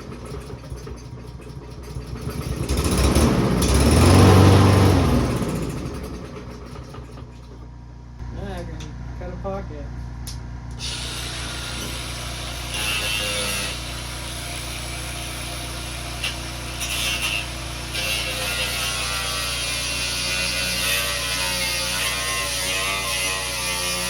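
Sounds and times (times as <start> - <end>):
power tool cutting plastic: 10.8 - 24.0.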